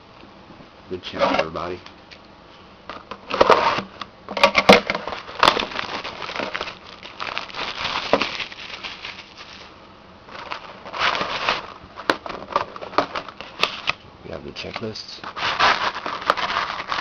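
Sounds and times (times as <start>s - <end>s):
plastic wrapping crinkling and tearing: 4.5s - 14.0s, 14.6s - 17.0s.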